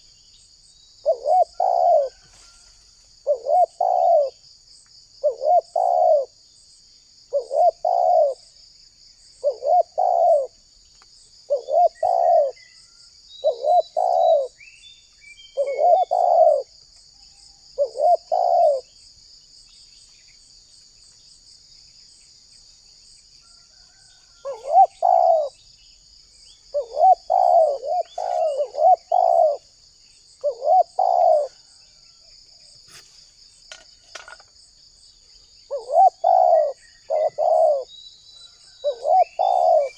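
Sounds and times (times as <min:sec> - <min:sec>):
dove cooing: 0:01.0 - 0:02.5, 0:03.2 - 0:04.4, 0:05.2 - 0:06.4, 0:07.3 - 0:08.5, 0:09.4 - 0:10.6, 0:11.5 - 0:12.6, 0:13.4 - 0:14.6, 0:15.6 - 0:16.7, 0:17.8 - 0:18.9, 0:24.0 - 0:25.6, 0:26.7 - 0:29.8, 0:30.4 - 0:31.8, 0:35.7 - 0:37.9, 0:38.6 - 0:39.9.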